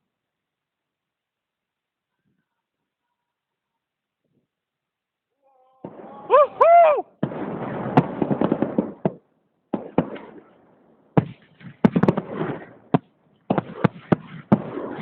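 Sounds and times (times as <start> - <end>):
firework bangs: 5.8 - 15.0
firework crackling: 5.8 - 15.0.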